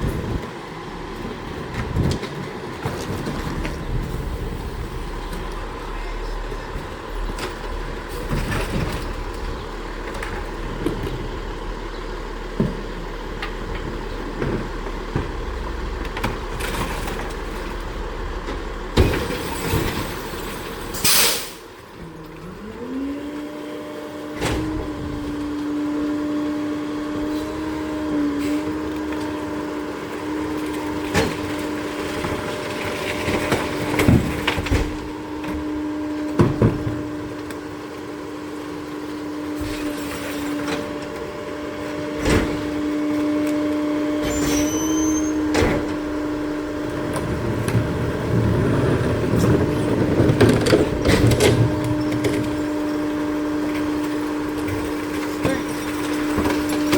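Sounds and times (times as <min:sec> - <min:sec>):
garbage truck engine running: 0:00.0 - 0:56.9
air brake hiss: 0:21.0 - 0:21.6.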